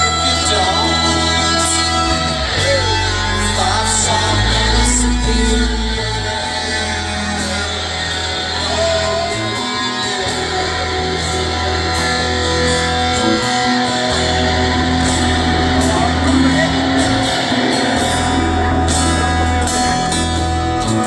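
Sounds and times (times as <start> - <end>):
electric guitar: 0.0 - 21.0
held bass notes: 0.0 - 21.0.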